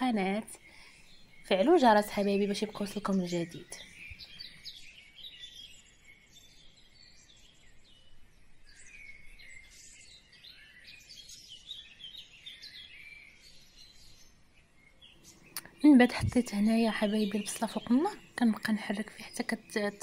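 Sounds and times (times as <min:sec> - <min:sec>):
low background hiss: 0:00.0 - 0:05.7, 0:13.5 - 0:20.0
small birds chirping: 0:00.0 - 0:20.0.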